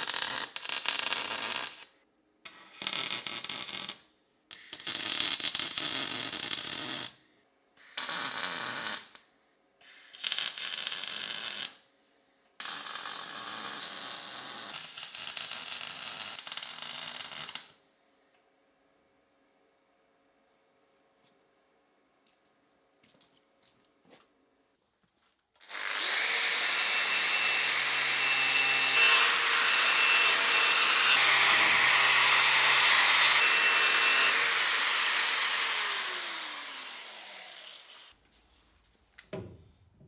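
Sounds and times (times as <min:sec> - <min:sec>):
metalworking tool on steel: 0:26.4 - 0:38.1.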